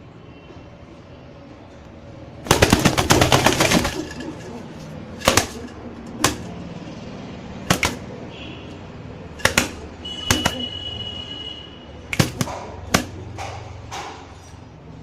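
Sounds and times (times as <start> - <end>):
pigeon wing slaps: 2.4 - 6.6, 7.6 - 8.1, 9.4 - 10.7, 12.1 - 13.6.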